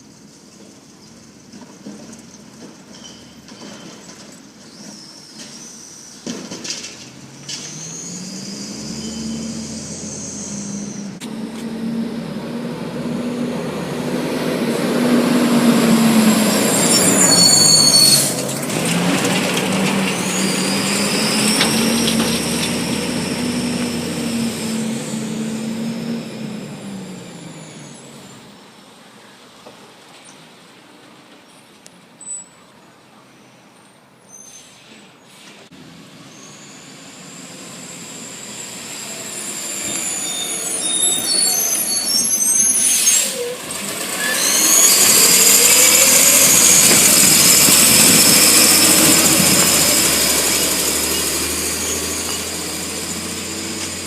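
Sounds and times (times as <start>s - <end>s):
diesel truck engine revving: 6.3s - 28.6s, 35.8s - 54.0s
high metallic squeal: 7.4s - 11.2s, 15.4s - 25.5s, 36.3s - 54.0s.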